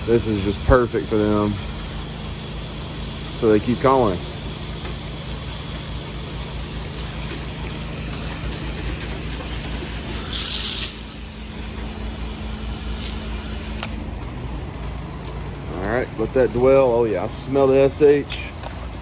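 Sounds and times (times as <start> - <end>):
hissing water spray: 0.0 - 14.2
pressure washer engine rumbling: 0.0 - 19.0.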